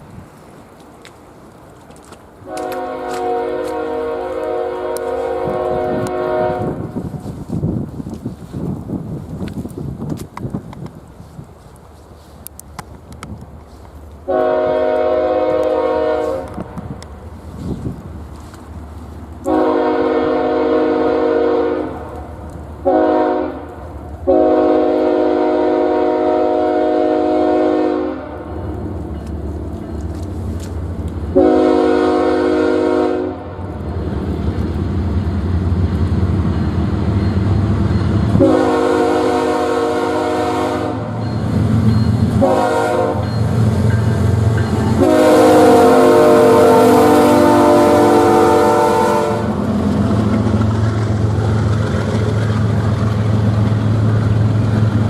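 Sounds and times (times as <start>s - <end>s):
low train rumble: 0.0s - 55.0s
locomotive air horn blasts: 2.5s - 7.0s, 14.3s - 16.8s, 19.4s - 22.2s, 22.8s - 23.7s, 24.3s - 28.4s, 31.3s - 33.5s, 38.3s - 41.2s, 42.3s - 43.4s, 44.8s - 49.6s.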